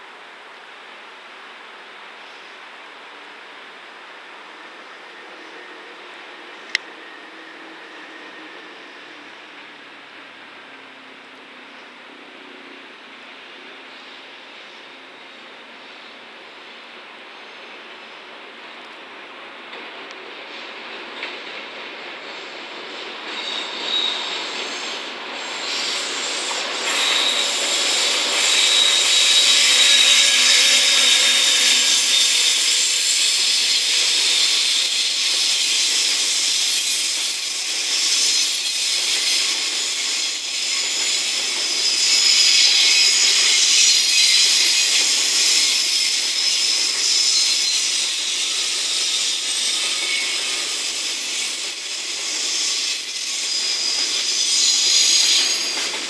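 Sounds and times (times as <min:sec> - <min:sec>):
freight train passing: 0:00.0 - 0:56.0
wheels hissing on rails: 0:00.6 - 0:56.0
wheel squeal: 0:23.3 - 0:56.0.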